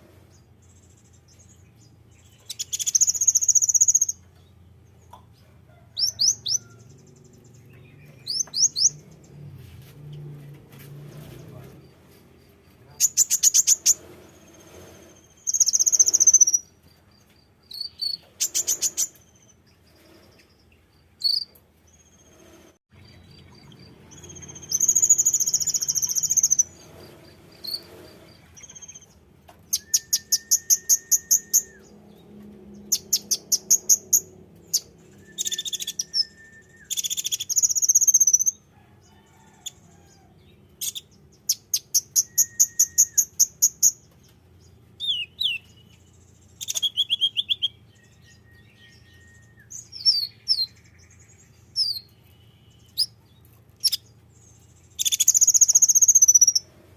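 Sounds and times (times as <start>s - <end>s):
buzzy bird chirps: 0.3s - 4.5s, 6.0s - 9.4s, 11.2s - 32.2s, 32.8s - 38.7s, 40.8s - 56.7s
songbird trilling: 2.2s - 4.2s, 6.0s - 9.1s, 15.2s - 16.8s, 23.0s - 29.1s, 29.7s - 32.0s, 32.8s - 38.6s, 40.8s - 44.1s, 45.0s - 53.2s, 54.9s - 56.6s
bird whistles: 2.5s - 4.2s, 15.3s - 16.7s, 29.7s - 31.9s, 34.7s - 38.6s, 40.8s - 44.0s, 46.6s - 50.7s, 55.0s - 56.6s.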